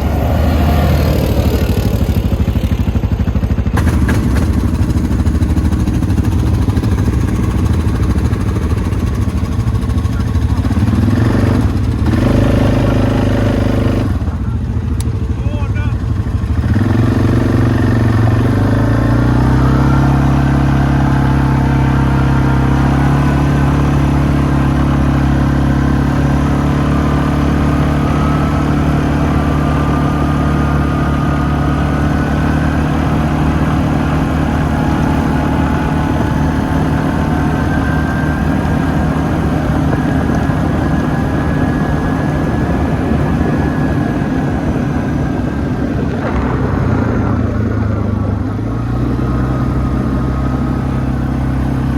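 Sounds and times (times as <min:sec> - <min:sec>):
atv engine running: 0:00.0 - 0:51.9
rushing noise: 0:33.7 - 0:50.8.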